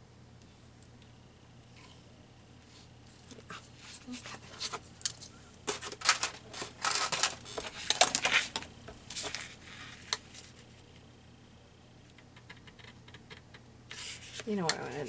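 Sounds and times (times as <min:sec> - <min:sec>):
paper rustling and shuffling: 0:03.3 - 0:10.6.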